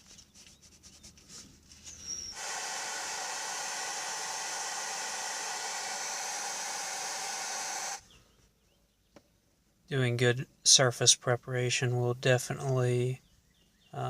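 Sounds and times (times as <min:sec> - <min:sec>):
pressurised gas hissing: 0:02.2 - 0:08.0.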